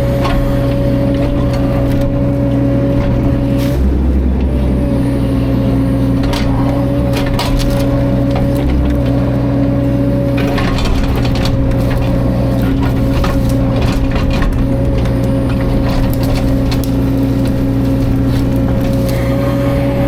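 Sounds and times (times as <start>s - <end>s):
excavator diesel engine running: 0.0s - 20.0s
sharp cracks and knocks: 6.2s - 9.4s, 10.3s - 19.2s.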